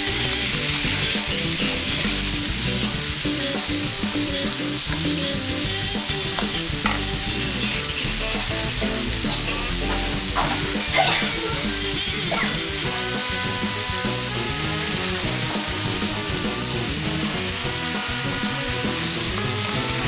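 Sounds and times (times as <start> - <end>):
food sizzling in hot oil: 0.0 - 20.0
spatula scraping a pan: 6.0 - 20.0.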